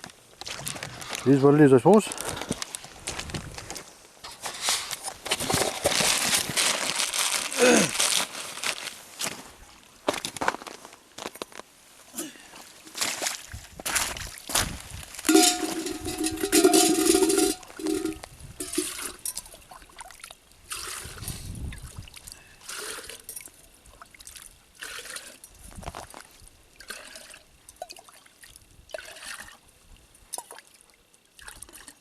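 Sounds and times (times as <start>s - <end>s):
water splashing: 15.3s - 21.2s.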